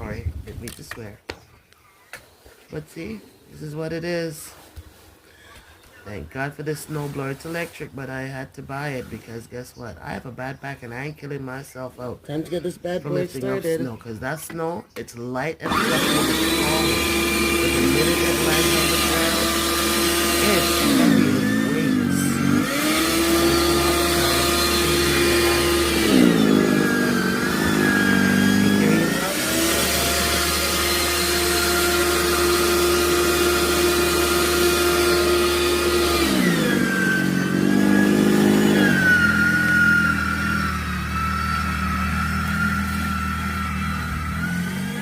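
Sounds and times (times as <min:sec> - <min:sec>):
electric snowblower motor whine: 0:15.7 - 0:45.0.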